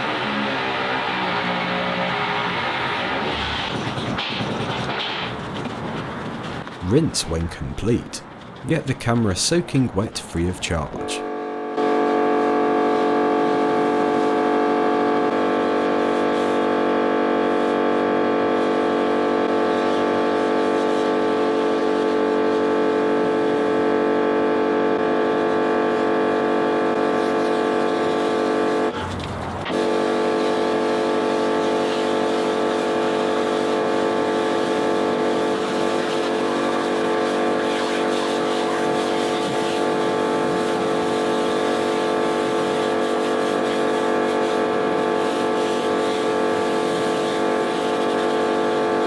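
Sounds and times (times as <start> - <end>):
pressure washer running: 11.2 - 28.9, 29.6 - 49.0.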